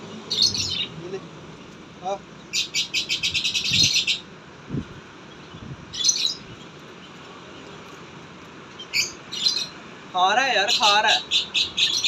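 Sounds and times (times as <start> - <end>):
small bird chirping: 0.0 - 4.3, 5.2 - 8.0, 8.6 - 9.8, 10.6 - 12.0.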